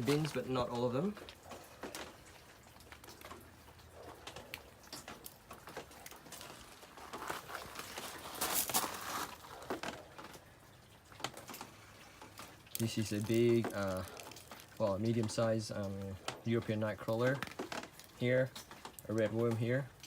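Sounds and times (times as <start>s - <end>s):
rain pattering: 0.0s - 20.0s
small clicks and knocks: 0.1s - 8.9s, 17.1s - 19.7s.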